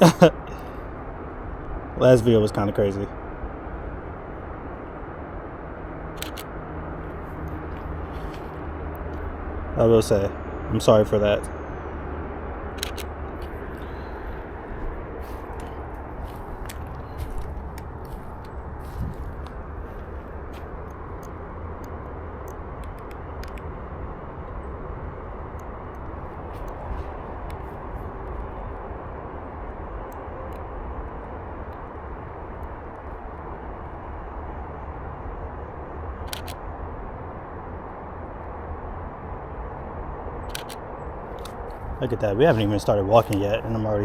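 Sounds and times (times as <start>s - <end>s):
outdoor background noise: 0.0s - 44.0s
camera shutter double click: 6.2s - 6.5s, 12.8s - 13.1s, 40.5s - 40.8s.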